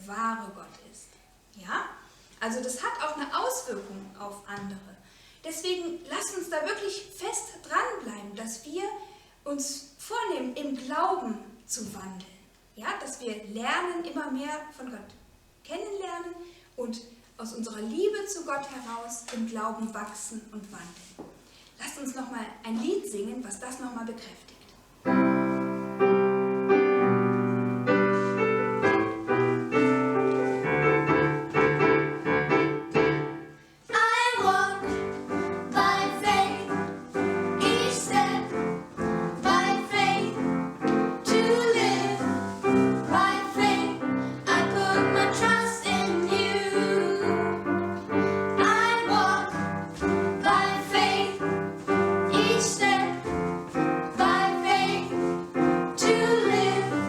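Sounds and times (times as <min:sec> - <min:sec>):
piano accompaniment: 0:25.1 - 0:57.0
voices singing: 0:33.9 - 0:57.0.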